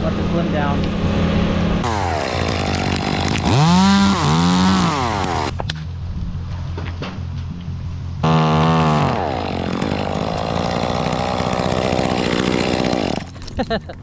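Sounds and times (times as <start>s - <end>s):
chainsaw cutting tree limb: 1.8s - 5.7s, 8.2s - 13.6s.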